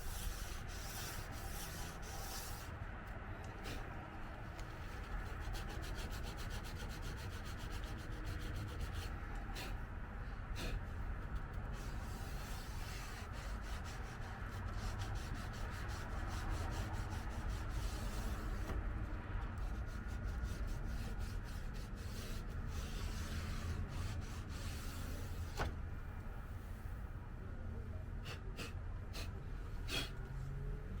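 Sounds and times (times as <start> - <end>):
sanding car body panel: 0.0 - 2.7, 4.7 - 9.8, 10.6 - 18.9, 19.5 - 25.6.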